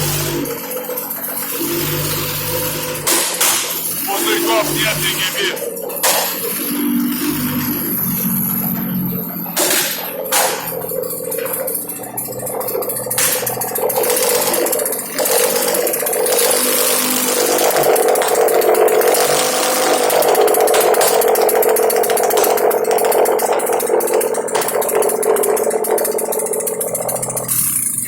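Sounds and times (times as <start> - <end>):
car engine running: 4.0 - 28.0.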